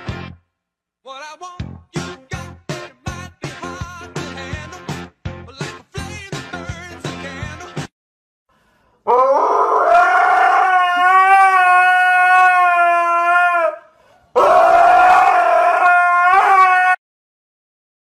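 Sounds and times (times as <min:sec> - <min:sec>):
animal howling: 0:09.1 - 0:17.0.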